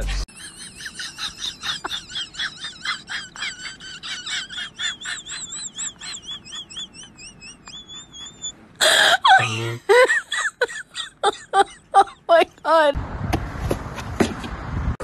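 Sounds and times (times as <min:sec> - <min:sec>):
bird chirping: 0:04.7 - 0:08.6.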